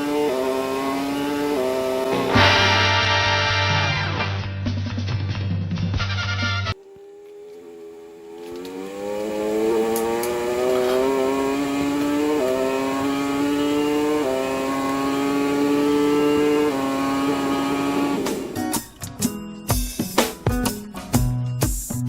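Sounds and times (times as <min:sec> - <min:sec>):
motorcycle engine accelerating: 0:00.0 - 0:04.4, 0:06.6 - 0:19.3.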